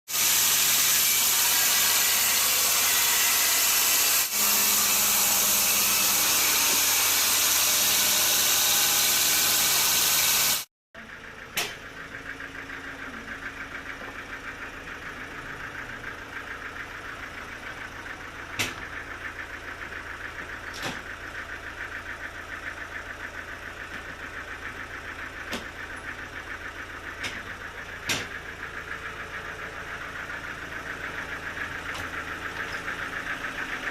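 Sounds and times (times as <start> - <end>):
saw cutting through log: 0.1 - 10.7
mill engine idling: 11.0 - 33.9.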